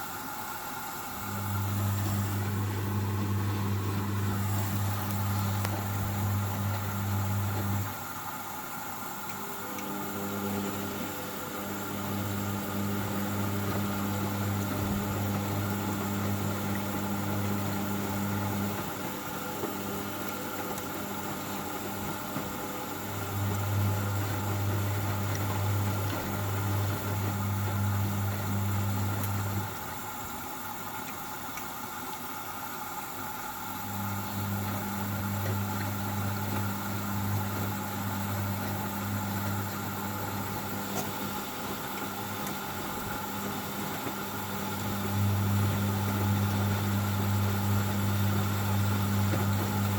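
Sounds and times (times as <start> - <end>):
washing machine drum motor hum: 0.0 - 49.9.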